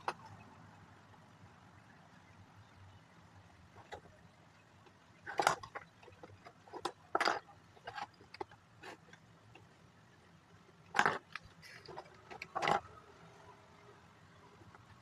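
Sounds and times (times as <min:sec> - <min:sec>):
plastic pieces clicking and rattling: 0:05.2 - 0:09.0, 0:10.9 - 0:12.9.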